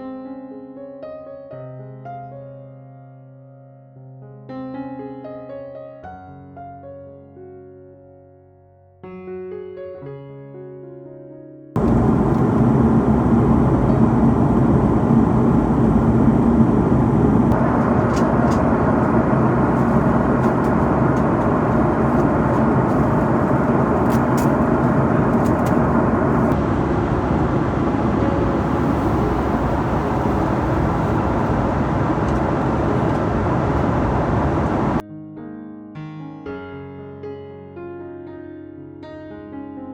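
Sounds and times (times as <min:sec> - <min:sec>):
jet engine rumble in cabin: 0:11.8 - 0:35.0.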